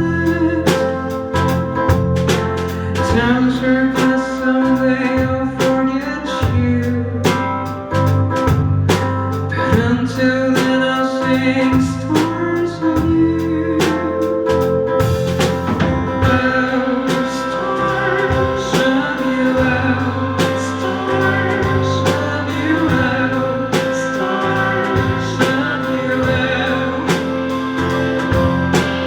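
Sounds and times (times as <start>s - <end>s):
live band playing: 0.0s - 29.0s
slow drum hits: 14.5s - 19.8s.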